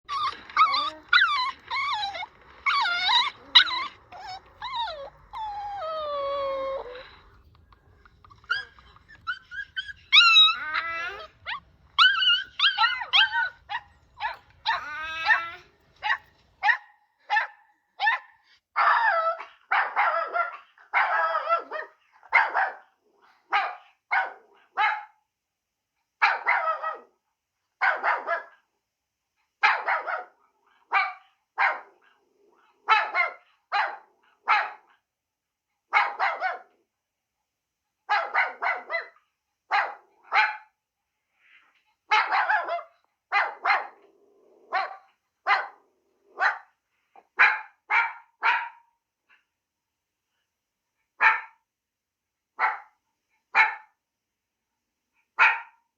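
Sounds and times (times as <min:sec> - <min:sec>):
dog whining and yelping: 0:00.1 - 0:22.8
dog barking: 0:08.4 - 0:25.2, 0:26.2 - 0:27.2, 0:27.8 - 0:28.7, 0:29.6 - 0:35.0, 0:35.9 - 0:36.8, 0:38.1 - 0:40.8, 0:42.1 - 0:49.5, 0:51.2 - 0:51.6, 0:52.6 - 0:54.0, 0:55.4 - 0:55.8.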